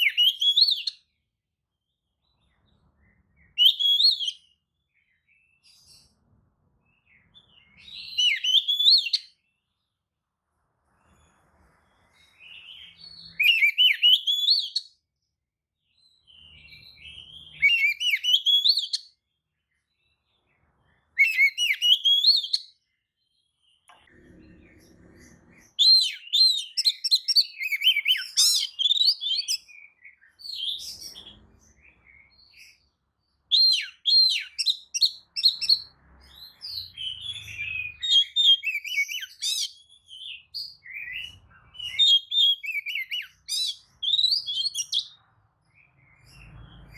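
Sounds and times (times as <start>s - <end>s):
bird singing whistles and chirps: 0.0s - 1.2s, 2.2s - 6.2s, 6.9s - 9.6s, 12.1s - 15.0s, 15.9s - 19.2s, 20.9s - 22.9s, 25.6s - 45.2s.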